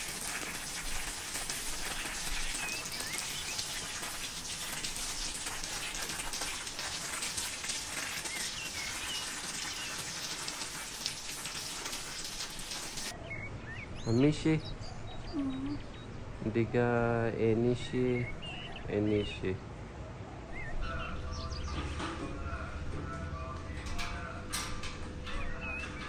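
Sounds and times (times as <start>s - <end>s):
bird chirps: 13.1s - 16.2s, 18.1s - 19.4s, 20.5s - 21.8s, 25.3s - 26.0s.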